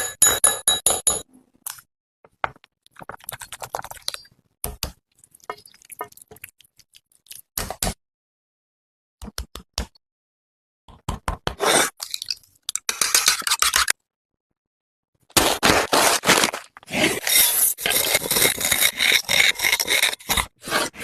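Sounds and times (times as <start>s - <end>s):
person crunching and chewing: 15.3s - 18.9s.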